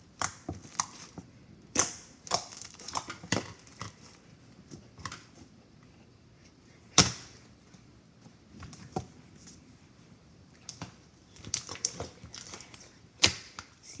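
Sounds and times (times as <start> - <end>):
slime popping and crackling: 1.7 - 4.1.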